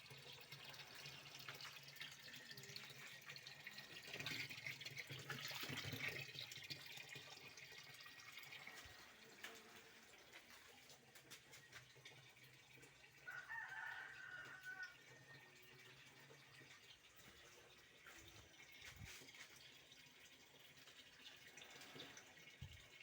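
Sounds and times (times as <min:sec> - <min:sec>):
faint rooster crowing: 0:13.2 - 0:15.4.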